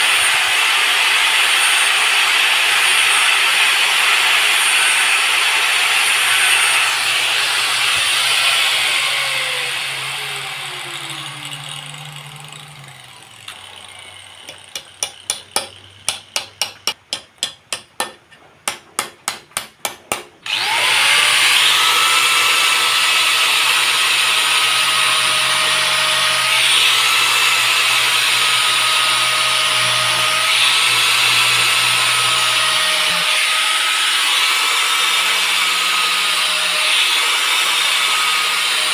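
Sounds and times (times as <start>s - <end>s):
electric power tool running: 0.0s - 16.1s, 20.4s - 38.9s
sharp evenly spaced taps: 14.4s - 20.4s.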